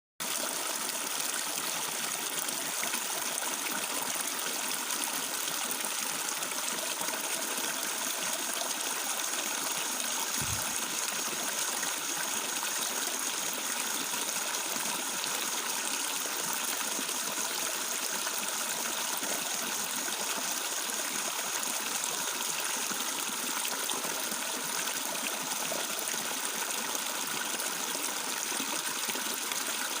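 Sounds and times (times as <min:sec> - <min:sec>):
water babbling and trickling: 0:00.2 - 0:30.0.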